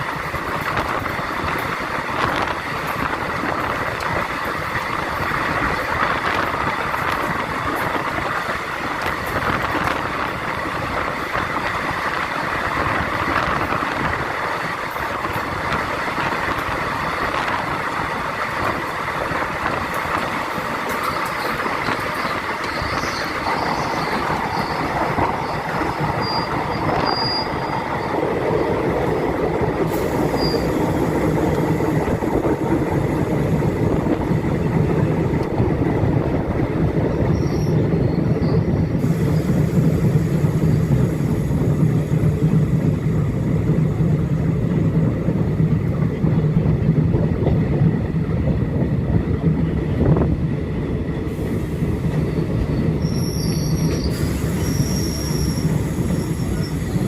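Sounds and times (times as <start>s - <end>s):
train coach rumbling on rails: 0.0s - 57.0s
faint high wheel squeals: 21.1s - 28.2s, 30.2s - 30.9s, 37.3s - 39.5s, 52.2s - 57.0s.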